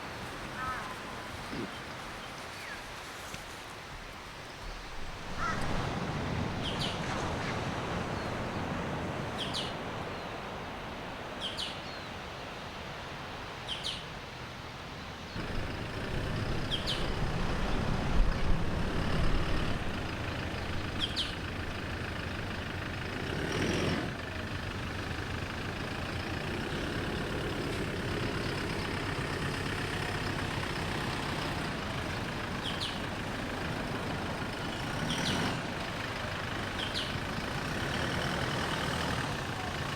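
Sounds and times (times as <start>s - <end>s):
steady low rumble: 15.4s - 22.8s
bird chirping: 16.3s - 18.0s, 20.6s - 21.6s, 32.6s - 33.1s, 36.8s - 37.2s.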